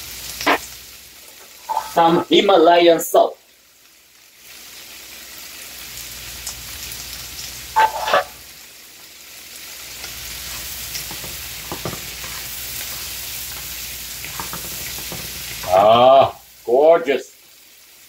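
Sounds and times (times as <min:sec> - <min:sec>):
vegetables sizzling in frying pan: 0:00.0 - 0:18.0
wooden spatulas scraping pan: 0:01.7 - 0:02.1, 0:07.8 - 0:08.4, 0:10.4 - 0:15.8.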